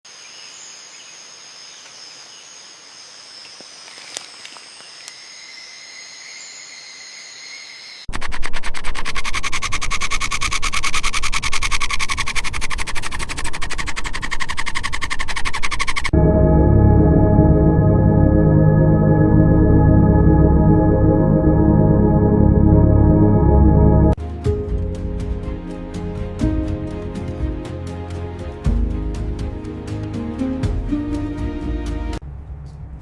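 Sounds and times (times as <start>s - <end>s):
ambient music with ringing tones: 16.1s - 32.2s.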